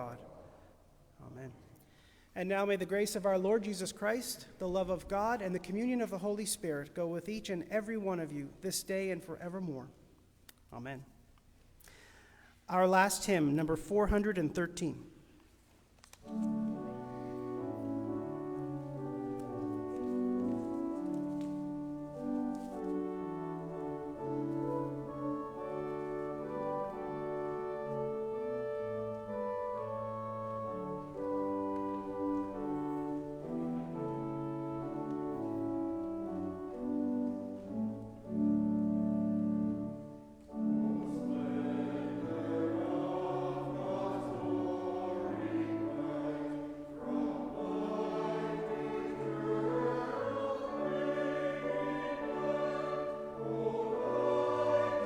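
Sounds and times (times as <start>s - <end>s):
church organ chords: 16.2s - 55.0s
congregation singing a hymn: 16.2s - 55.0s.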